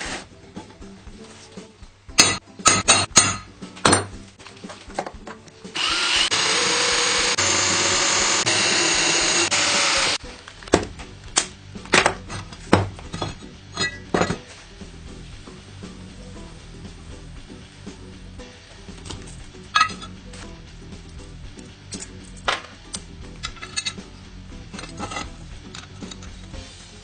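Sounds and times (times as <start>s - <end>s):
workpieces knocking and clanking: 2.2s - 5.4s, 11.9s - 14.5s, 19.8s - 20.2s, 23.4s - 24.0s, 24.7s - 26.4s
power tool running: 5.8s - 10.2s.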